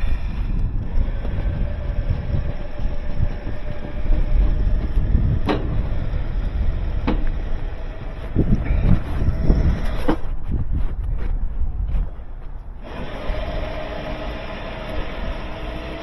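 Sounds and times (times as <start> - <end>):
vehicle engine rumbling: 0.0 - 16.0
sharp knocks: 7.0 - 7.4.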